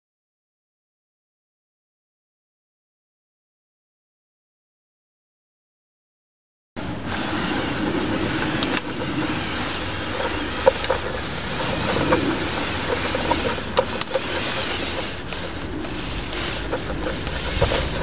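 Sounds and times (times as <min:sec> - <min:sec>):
toy truck motors whirring: 0:06.8 - 0:18.0
plastic gears clicking: 0:07.1 - 0:18.0.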